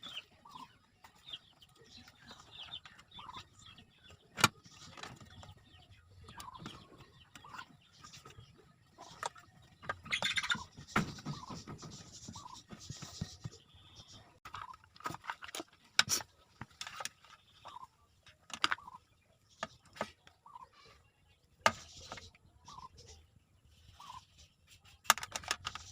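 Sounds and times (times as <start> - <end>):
clicks and knocks from handling: 25.0 - 25.9.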